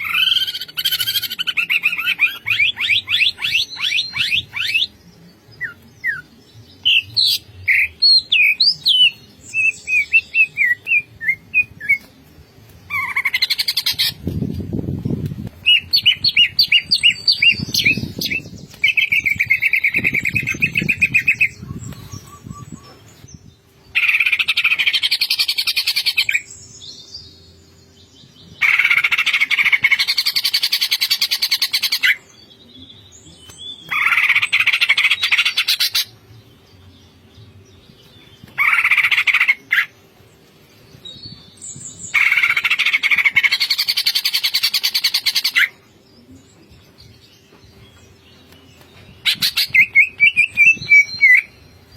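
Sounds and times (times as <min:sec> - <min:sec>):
bird whistled chirps and trills: 0:00.0 - 0:05.0, 0:15.6 - 0:23.4, 0:47.4 - 0:51.9.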